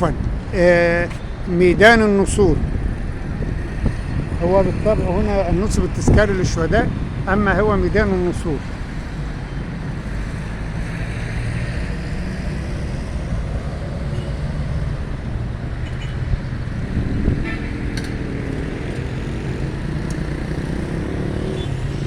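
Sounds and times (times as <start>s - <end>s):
passing cars: 0.0s - 22.0s
vehicle engine rising in pitch: 16.8s - 22.0s.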